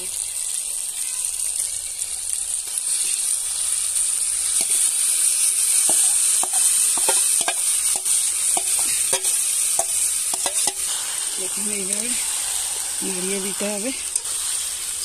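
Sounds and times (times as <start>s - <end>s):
chicken sizzling in hot oil: 0.0s - 15.0s
bowl and spoon knocking on pan: 5.9s - 7.6s.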